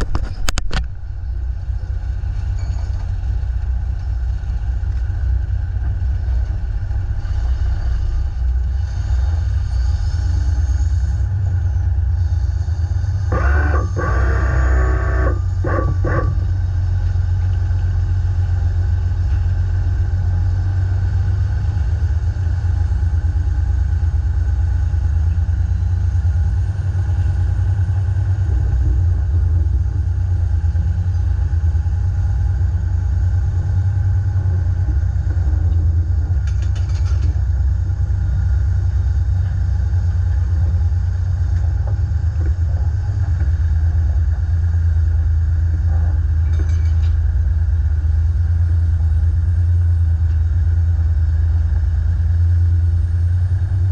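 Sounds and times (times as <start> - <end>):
truck engine droning: 0.0 - 53.9.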